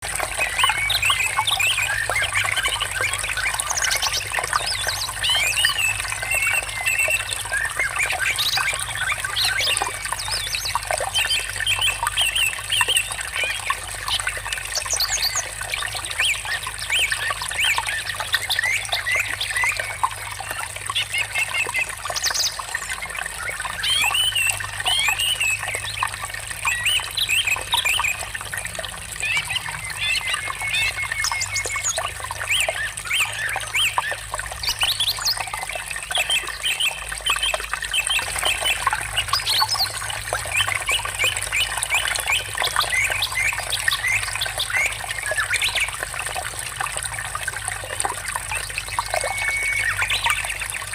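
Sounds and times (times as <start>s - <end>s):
trickle of running water: 0.0s - 50.9s
birds chirping and warbling: 0.1s - 46.5s, 47.3s - 50.9s.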